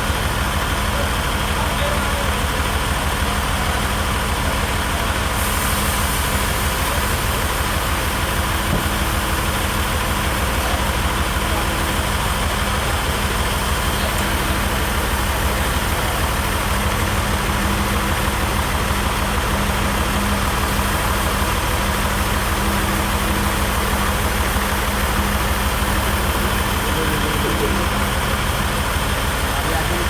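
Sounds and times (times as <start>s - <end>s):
machine engine running: 0.0s - 30.0s.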